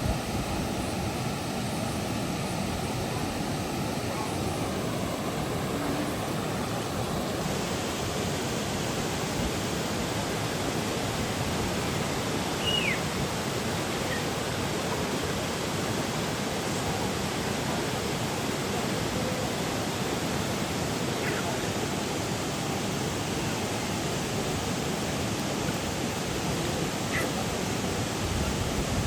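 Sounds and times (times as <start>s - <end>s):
waterfall rushing: 0.0s - 28.6s.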